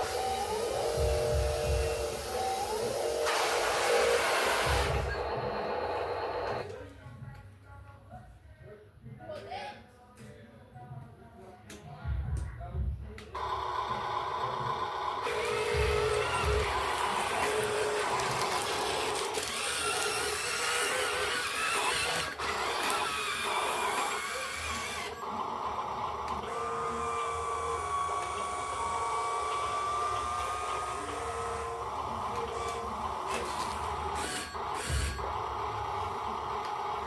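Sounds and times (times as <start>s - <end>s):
machine running: 0.0s - 6.7s, 13.4s - 37.0s
machine whine: 0.0s - 6.7s, 13.4s - 37.0s.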